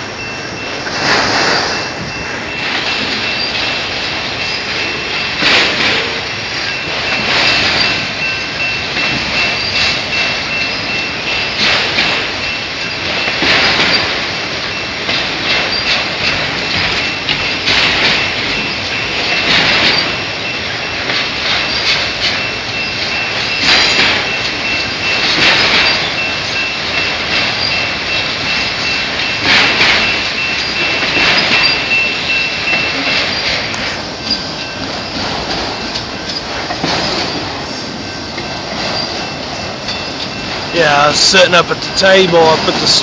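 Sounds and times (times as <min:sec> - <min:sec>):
train wheels clattering on rails: 0:00.0 - 0:43.0
thin high tone: 0:37.2 - 0:43.0.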